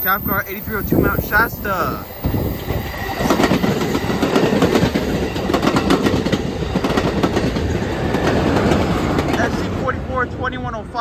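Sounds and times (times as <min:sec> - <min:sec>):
train wheels clacking over rail joints: 0:02.7 - 0:09.9.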